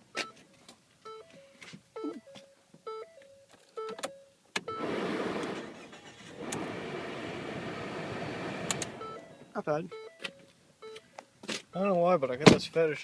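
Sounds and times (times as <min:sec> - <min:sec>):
car warning chime dinging: 0:01.0 - 0:05.0, 0:08.9 - 0:12.2
car engine cranking and starting: 0:04.6 - 0:09.3
car engine idling: 0:04.8 - 0:09.4.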